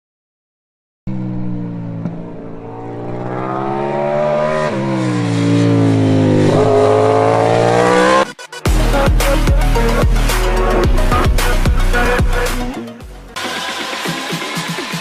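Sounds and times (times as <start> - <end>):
racing motorcycle engine accelerating: 1.1 - 12.6
electronic music with heavy beat: 7.7 - 15.0.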